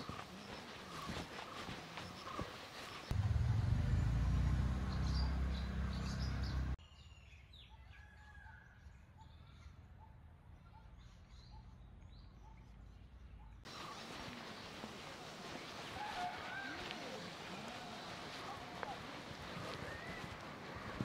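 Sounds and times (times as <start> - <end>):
loud low rumble: 3.1 - 6.8.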